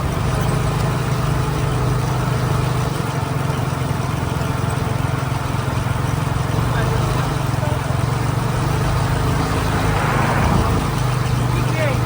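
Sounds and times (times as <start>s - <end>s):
motorcycle engine running: 0.0s - 12.0s
road noise: 0.0s - 12.0s
wind rushing: 9.3s - 11.4s.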